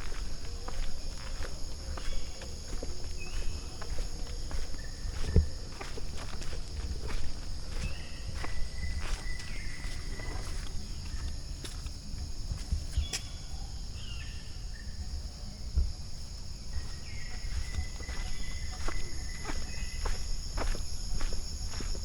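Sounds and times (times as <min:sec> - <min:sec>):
light footsteps: 0:00.0 - 0:11.9, 0:16.8 - 0:22.0
insects droning: 0:00.0 - 0:22.0.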